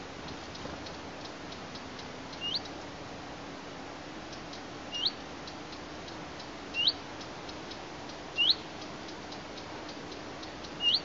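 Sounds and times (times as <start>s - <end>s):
steady low hum: 0.0s - 11.0s
bird's rising whistled call: 4.9s - 5.2s, 6.8s - 7.0s, 8.4s - 8.6s, 10.8s - 11.0s
faint rapid ticking: 5.4s - 11.0s.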